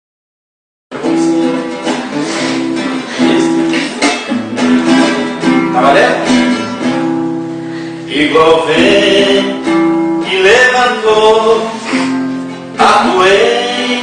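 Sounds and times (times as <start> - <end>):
acoustic guitar strumming: 0.9 - 14.0.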